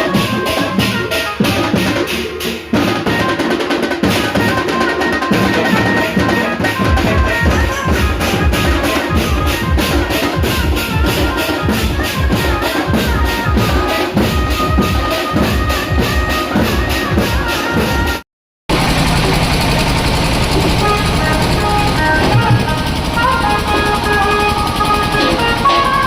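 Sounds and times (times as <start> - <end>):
drum-driven music with melody: 0.0 - 18.2, 20.5 - 26.0
heavy bass drum: 6.6 - 26.0.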